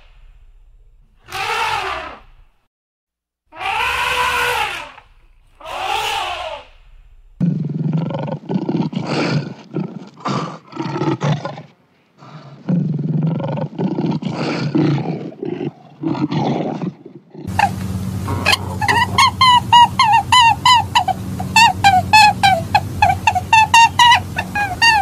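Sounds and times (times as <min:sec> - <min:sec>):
steady low hum: 0:00.0 - 0:01.3, 0:04.2 - 0:09.7, 0:17.5 - 0:25.0
short high calls: 0:01.3 - 0:02.3, 0:03.5 - 0:06.8, 0:17.5 - 0:25.0
lion roaring: 0:03.5 - 0:23.3.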